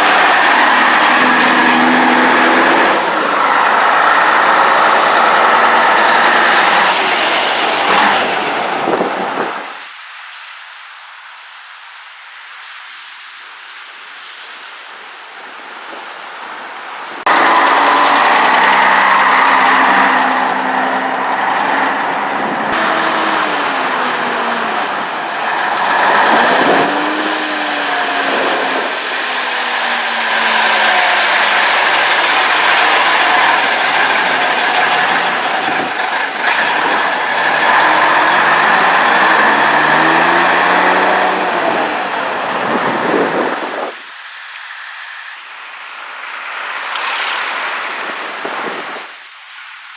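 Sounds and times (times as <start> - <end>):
diesel truck engines revving: 0.0 - 9.9, 17.1 - 45.4.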